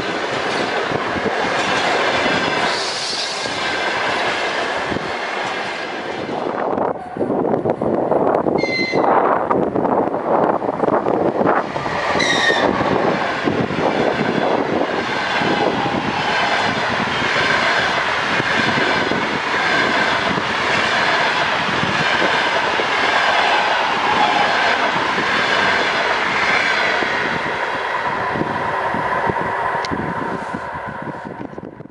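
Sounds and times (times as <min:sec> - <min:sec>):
brief high tone: 0:08.6 - 0:09.1.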